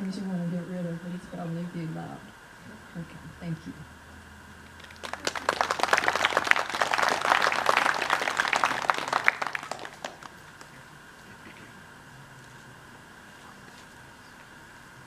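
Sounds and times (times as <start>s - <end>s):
small crowd applauding: 4.7s - 11.4s.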